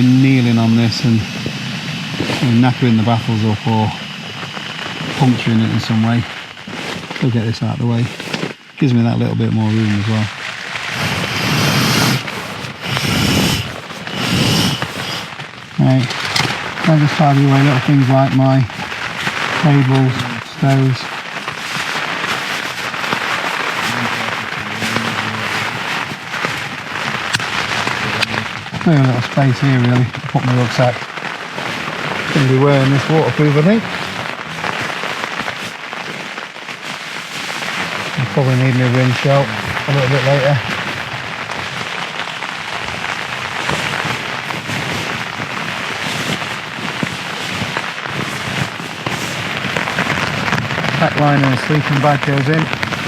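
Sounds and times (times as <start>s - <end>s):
rain pattering on tent: 0.0s - 53.0s
nylon bags rustling and clicking: 9.8s - 23.9s, 25.6s - 53.0s.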